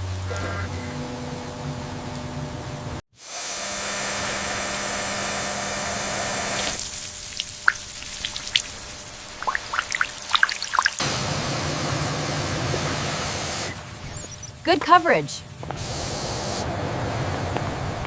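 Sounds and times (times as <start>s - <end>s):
hose spraying water: 3.2s - 13.8s, 15.8s - 17.6s
water drops dripping: 6.8s - 11.0s.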